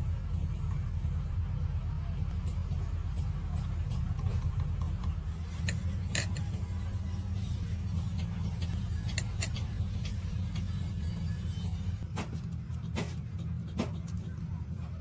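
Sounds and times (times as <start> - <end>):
steady low rumble: 0.0 - 15.0
metal tool clicks and taps: 4.8 - 6.5, 8.6 - 10.2.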